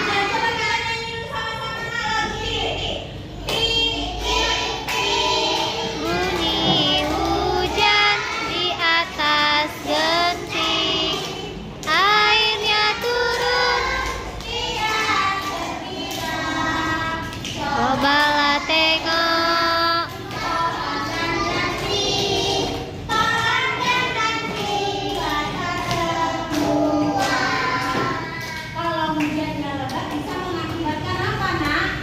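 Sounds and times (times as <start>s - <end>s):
children singing: 3.4s - 28.8s.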